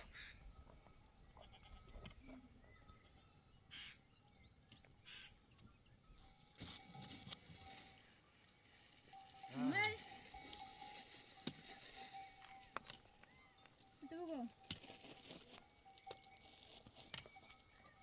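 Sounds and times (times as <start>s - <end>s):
sheep and goats calling: 1.2s - 2.2s, 2.8s - 4.2s, 4.9s - 5.5s.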